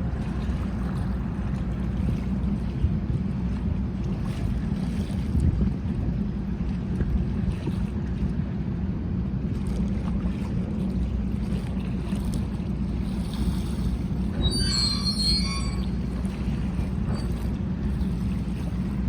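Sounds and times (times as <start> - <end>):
ferry engines rumbling: 0.0 - 19.0
wind: 0.0 - 19.0
high-pitched squeals: 14.4 - 16.0.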